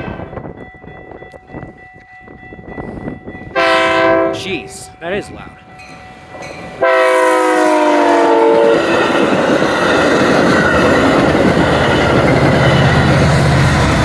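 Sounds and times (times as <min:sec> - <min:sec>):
train horn chord: 0:00.0 - 0:00.4, 0:03.5 - 0:04.8, 0:06.8 - 0:09.0
train rushing by on rails: 0:00.0 - 0:14.0.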